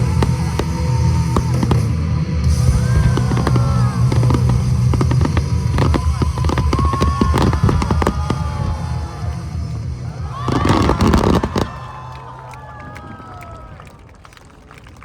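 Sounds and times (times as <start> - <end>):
loud rock music: 0.0 - 11.3
fireworks banging and crackling: 0.0 - 15.0.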